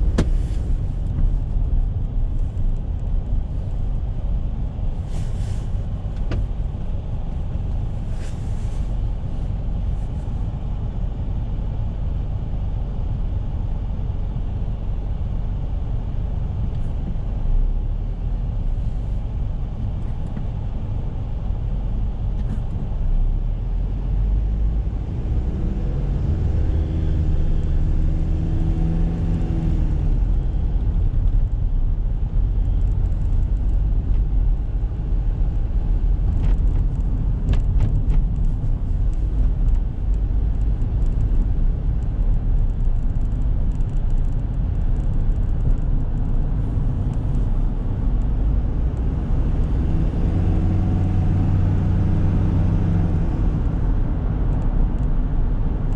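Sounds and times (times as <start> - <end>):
tyre and road noise: 0.0 - 11.8, 24.0 - 55.9.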